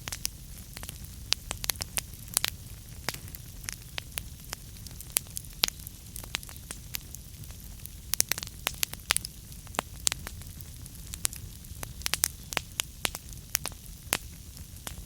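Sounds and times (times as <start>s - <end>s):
flames rumbling: 0.0s - 15.0s
logs crackling and popping: 0.0s - 15.0s.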